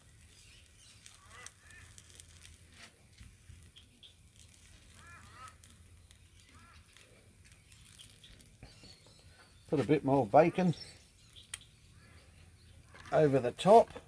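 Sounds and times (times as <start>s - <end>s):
faint honking bird calls: 4.9s - 5.8s.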